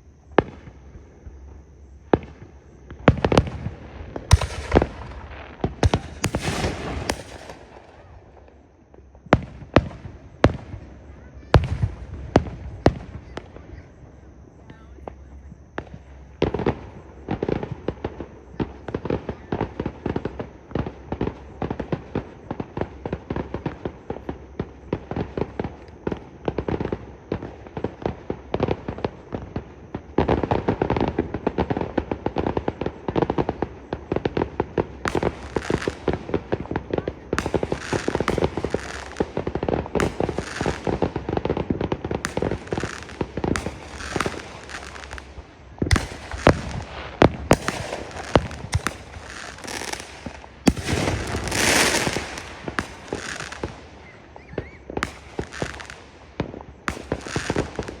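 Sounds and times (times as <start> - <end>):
fireworks bursting: 0.0 - 58.0
high hissing crackle: 17.8 - 58.0.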